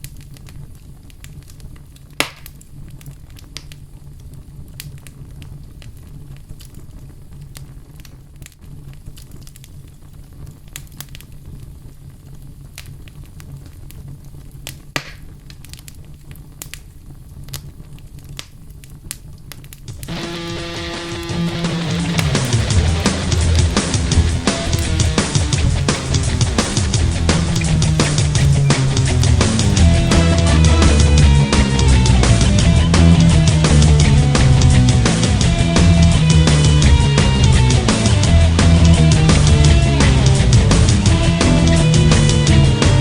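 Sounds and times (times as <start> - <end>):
campfire crackling: 20.0 - 30.3
fire snapping: 20.0 - 30.3.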